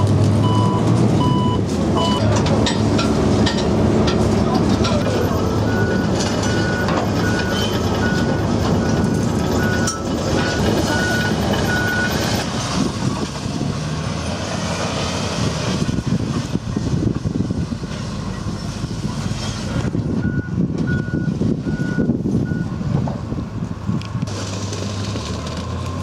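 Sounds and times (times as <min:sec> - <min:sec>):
reversing warning beeps: 0:00.0 - 0:02.3, 0:05.3 - 0:12.2, 0:20.2 - 0:22.7
heavy vehicle engine running: 0:00.0 - 0:26.0.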